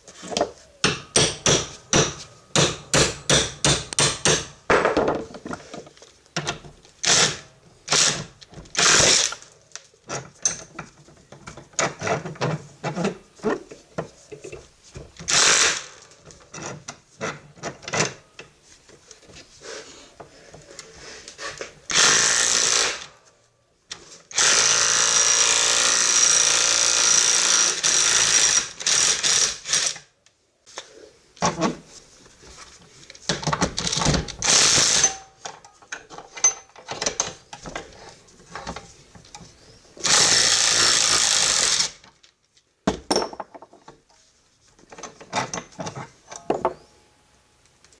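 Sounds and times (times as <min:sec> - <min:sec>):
impact driver hammering: 0:00.8 - 0:05.0.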